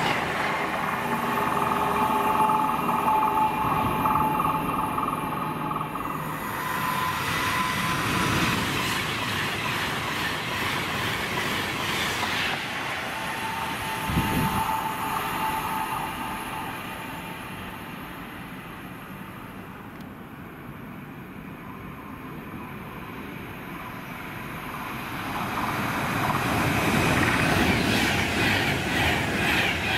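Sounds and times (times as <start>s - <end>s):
train running past: 0.0s - 29.9s.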